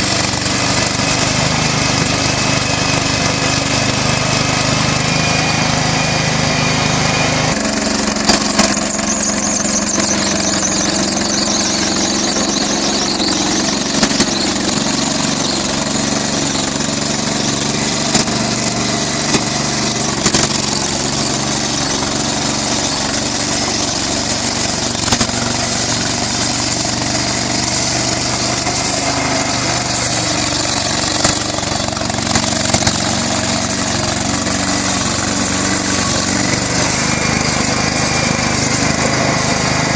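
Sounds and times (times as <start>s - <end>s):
flywheel engine running: 0.0s - 39.9s
sharp engine knock: 7.6s - 22.5s, 24.9s - 28.8s, 30.4s - 35.8s.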